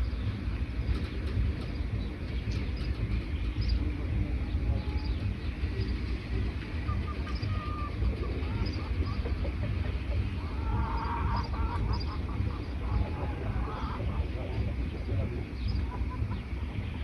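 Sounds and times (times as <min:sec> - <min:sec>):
steady low rumble: 0:00.0 - 0:17.0
wild birds chirping: 0:00.0 - 0:17.0
whistled bird calls: 0:06.8 - 0:09.6.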